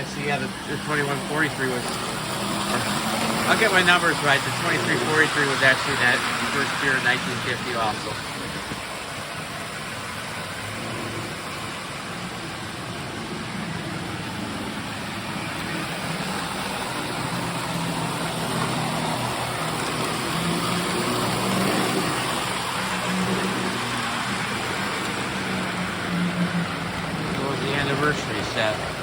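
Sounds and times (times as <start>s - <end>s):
electric motor hum: 0.0s - 29.0s
toy train wheels rumbling on rail: 0.0s - 29.0s.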